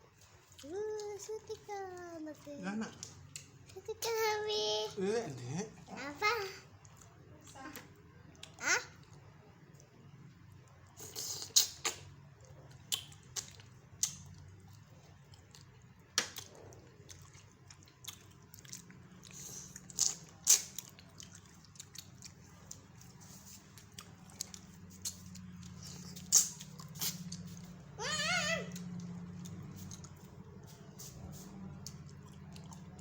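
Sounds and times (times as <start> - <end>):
person chewing and biting: 11.0 - 27.7
wet mouth clicks and smacks: 11.2 - 12.2, 12.9 - 14.4, 19.8 - 21.0, 24.4 - 27.6.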